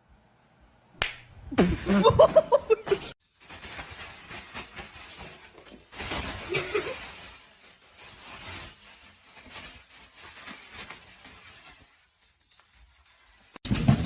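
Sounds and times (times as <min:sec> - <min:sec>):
person laughing: 0:01.5 - 0:03.2, 0:06.5 - 0:07.0.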